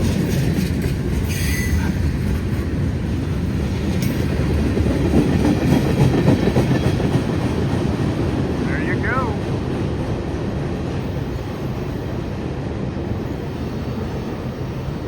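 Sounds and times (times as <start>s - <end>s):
wheels clacking over rail joints: 0.0s - 8.6s
freight train rumbling past: 0.0s - 15.0s
high wheel squeal: 1.3s - 2.0s.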